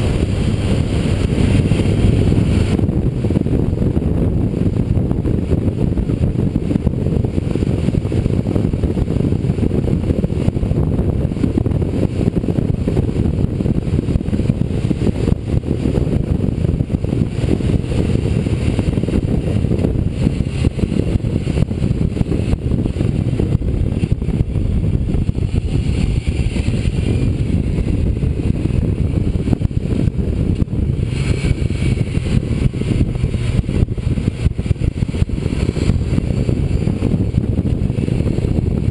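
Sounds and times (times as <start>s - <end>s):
motorcycle engine rumble: 0.0s - 38.9s.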